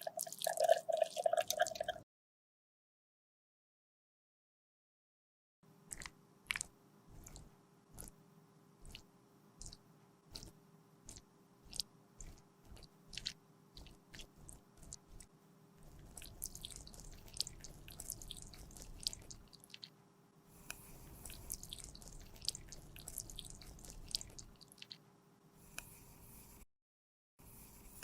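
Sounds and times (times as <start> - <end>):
sticky crackling and scraping: 9.6 - 20.0, 20.9 - 25.0.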